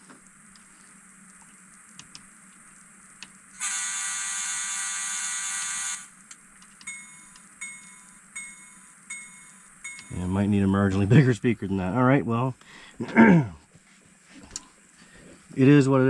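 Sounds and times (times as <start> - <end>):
locomotive bell ringing: 6.9 - 11.3.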